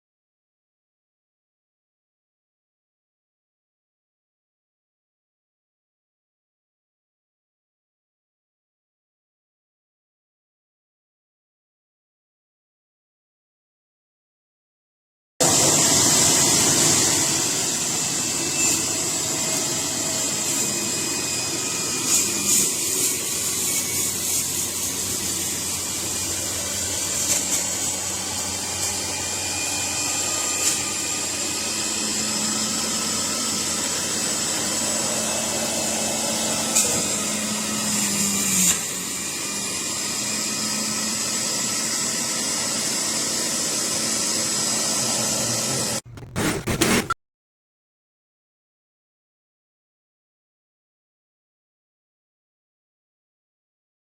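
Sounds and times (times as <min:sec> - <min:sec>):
juicer motor whining: 0:15.4 - 0:46.4.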